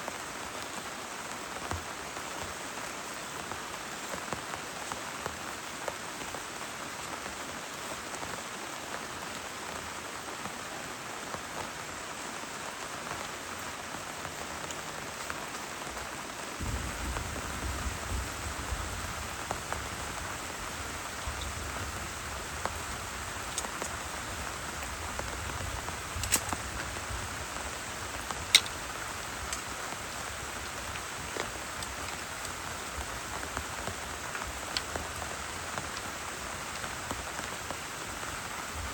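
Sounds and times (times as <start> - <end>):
heavy rain falling: 0.0 - 38.9
deep low rumble: 16.6 - 22.7.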